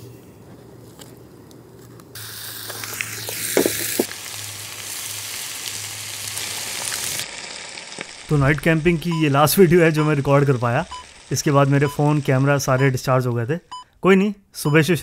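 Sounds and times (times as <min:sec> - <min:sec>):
chicken sizzling in a pan: 0:02.2 - 0:13.0.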